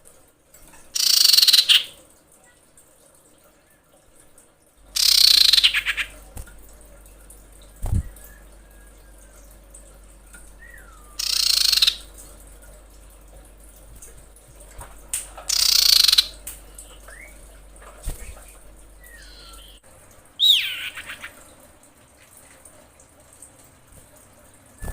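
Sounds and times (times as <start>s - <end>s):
bird harsh rasping calls: 1.0s - 1.9s, 5.0s - 6.2s, 10.7s - 12.1s, 15.5s - 17.1s, 19.0s - 19.8s, 20.4s - 21.4s
faint whistled slurs: 7.7s - 9.3s, 10.6s - 11.2s.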